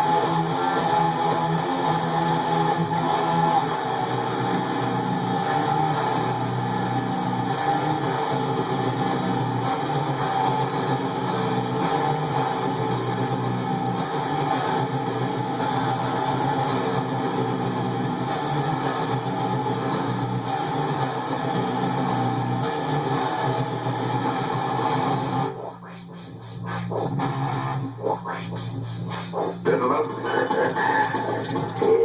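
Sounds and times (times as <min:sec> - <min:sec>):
distorted electric guitar metal: 0:00.0 - 0:32.0.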